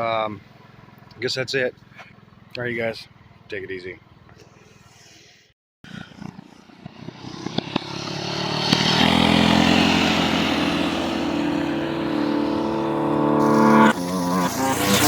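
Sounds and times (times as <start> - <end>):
scooter engine under throttle: 6.1 - 15.0.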